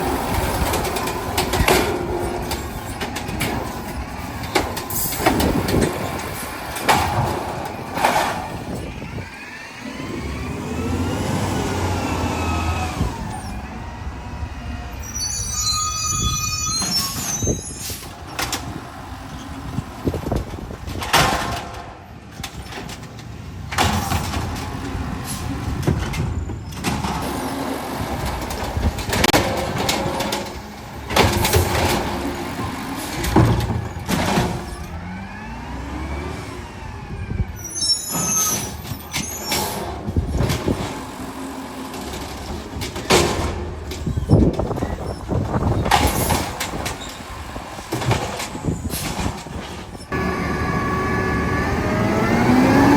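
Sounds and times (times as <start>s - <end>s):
garbage truck engine running: 0.0s - 15.7s, 16.6s - 52.9s
high squeals: 8.5s - 18.2s, 37.5s - 39.9s
sharp metal bangs and clanks: 38.1s - 50.5s.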